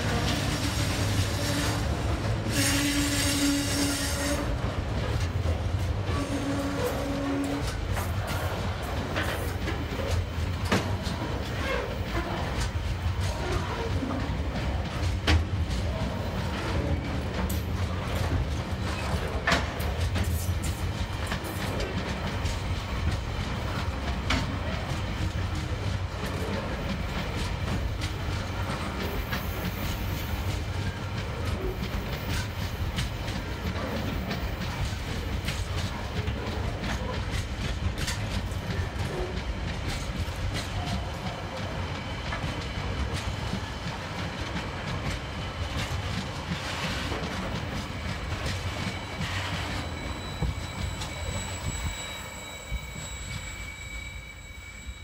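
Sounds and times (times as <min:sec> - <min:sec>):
freight train rumbling past: 0:00.0 - 0:55.0
wheels clicking over rail joints: 0:04.0 - 0:51.7.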